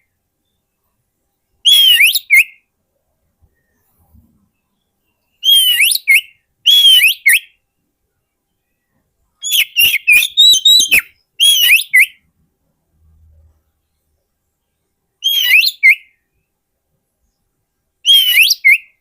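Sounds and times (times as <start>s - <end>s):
bird singing whistled notes: 1.6s - 2.7s, 3.5s - 7.9s, 8.5s - 12.3s, 14.7s - 16.6s, 18.0s - 19.0s.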